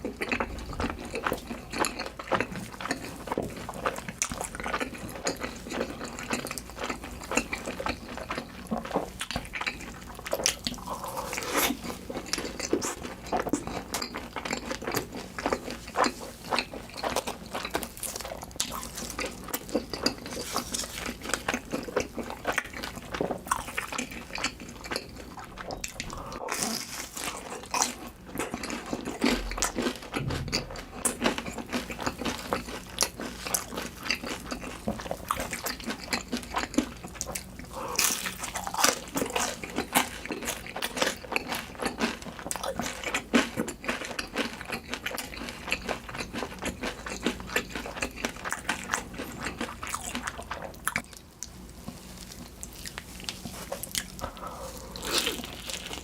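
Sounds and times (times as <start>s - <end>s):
biting and wet chewing: 0.0s - 56.0s.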